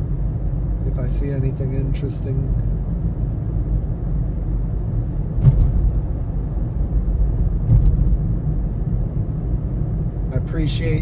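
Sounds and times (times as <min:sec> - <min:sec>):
car cabin road and engine rumble: 0:00.0 - 0:11.0
brief knocks: 0:05.4 - 0:06.0.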